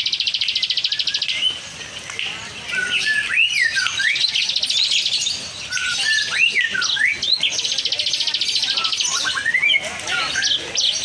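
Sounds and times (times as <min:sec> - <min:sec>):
lovebirds chattering trills: 0:00.0 - 0:11.0
whistled chirps: 0:00.1 - 0:01.6, 0:02.7 - 0:07.8, 0:08.6 - 0:10.6.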